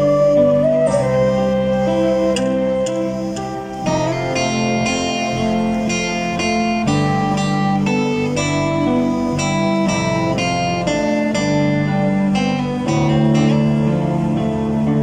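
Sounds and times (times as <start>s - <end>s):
plucked acoustic guitar melody: 0.0s - 15.0s.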